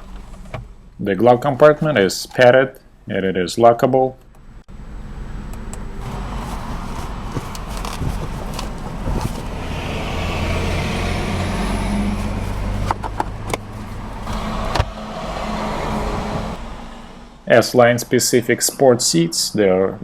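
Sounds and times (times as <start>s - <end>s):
motor vehicle rumble: 4.3s - 17.6s.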